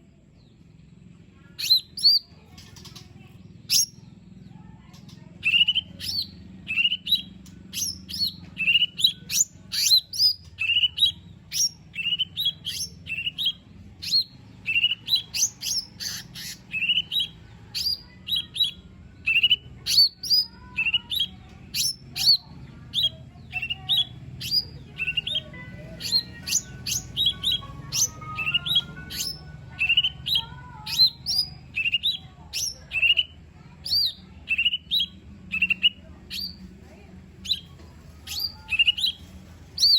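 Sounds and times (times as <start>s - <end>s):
bird chirping and whistling: 3.7s - 4.0s, 5.4s - 36.6s, 37.4s - 37.7s, 38.3s - 39.2s.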